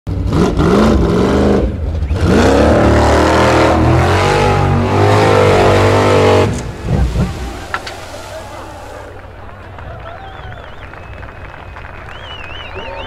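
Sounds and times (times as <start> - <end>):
buggy engine revving hard: 0.1 - 7.4.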